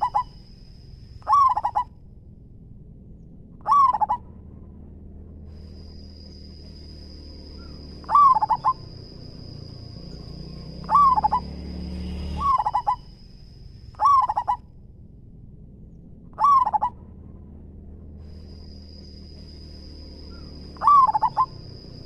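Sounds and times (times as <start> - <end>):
dove cooing song: 0.0 - 0.5, 1.2 - 1.9, 3.6 - 4.2, 5.7 - 13.2, 14.0 - 14.6, 16.4 - 17.0, 19.3 - 22.0
faint high-pitched whine: 0.0 - 22.0.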